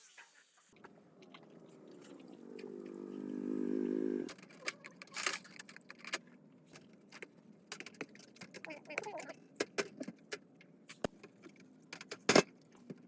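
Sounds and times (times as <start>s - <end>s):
small motor humming: 1.7s - 4.5s
metallic clicks and clinks: 4.3s - 6.2s.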